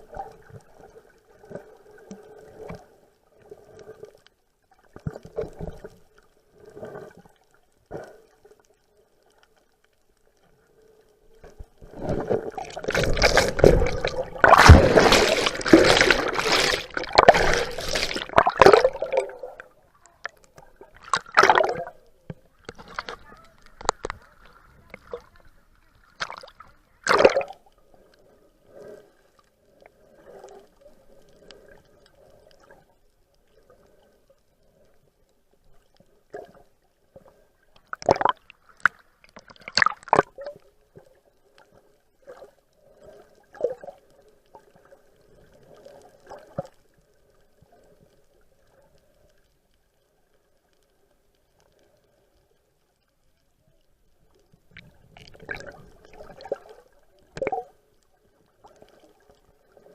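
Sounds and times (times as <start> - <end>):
water splashing around a boat: 11.6 - 22.0, 22.6 - 27.6.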